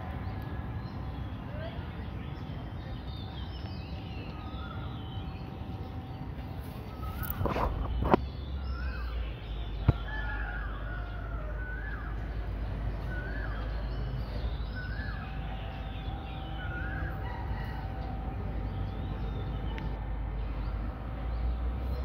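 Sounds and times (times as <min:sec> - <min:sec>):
bird calling: 0:06.6 - 0:18.1.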